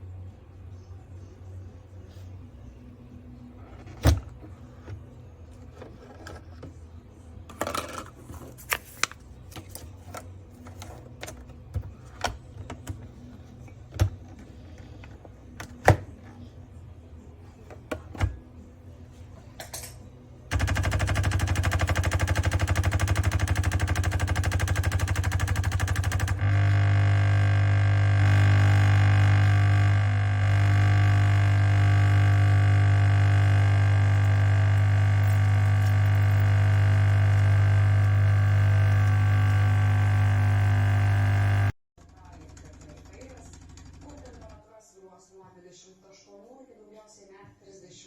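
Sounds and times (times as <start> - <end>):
coffee machine pump buzzing: 20.5 - 41.8.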